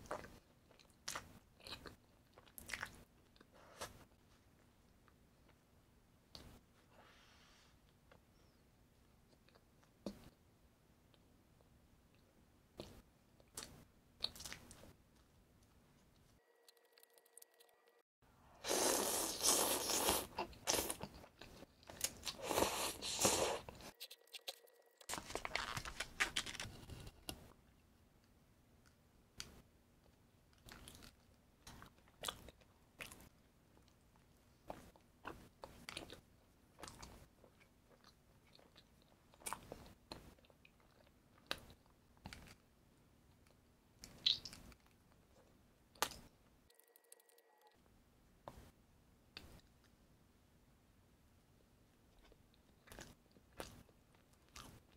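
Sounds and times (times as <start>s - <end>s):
quiet chewing: 0.0s - 4.0s, 28.2s - 42.6s, 51.9s - 54.9s
soft clicks and mouth sounds: 6.2s - 6.6s, 9.0s - 11.3s, 12.1s - 17.8s, 27.1s - 42.6s, 43.2s - 47.8s, 48.4s - 50.0s, 52.1s - 54.9s.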